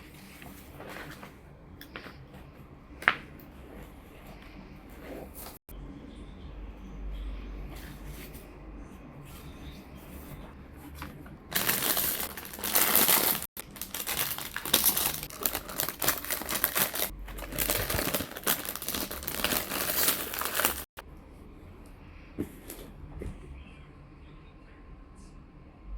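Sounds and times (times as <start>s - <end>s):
packaging crinkling and tearing: 11.5s - 20.9s.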